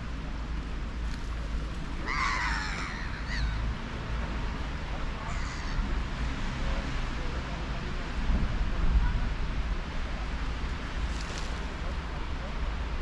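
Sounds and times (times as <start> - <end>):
bird calls: 2.0 - 3.7
low wind rumble: 7.8 - 13.0.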